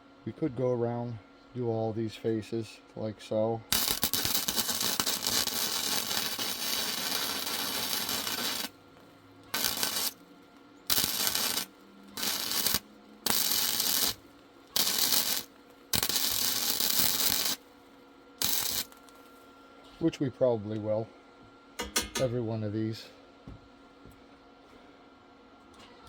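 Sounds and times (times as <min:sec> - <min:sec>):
welder crackling hiss: 0:03.7 - 0:08.8, 0:09.5 - 0:10.2, 0:10.9 - 0:17.6, 0:18.4 - 0:19.3.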